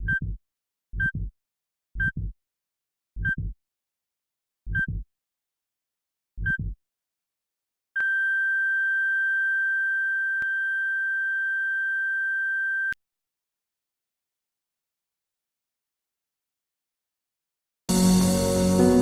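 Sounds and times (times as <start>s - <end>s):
heart monitor beeps: 0.0s - 0.4s, 1.0s - 1.3s, 2.0s - 2.3s, 4.7s - 5.0s, 6.4s - 6.8s
soft heartbeat thumps: 0.0s - 0.4s, 1.0s - 1.3s, 2.0s - 2.4s, 3.2s - 3.6s, 4.7s - 5.0s, 6.4s - 6.8s.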